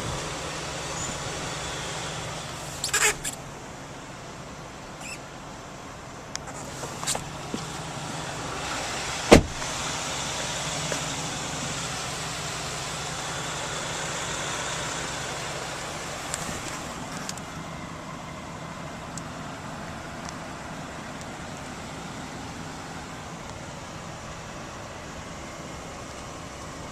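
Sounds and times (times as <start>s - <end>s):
vehicle running noise: 0.0s - 26.9s.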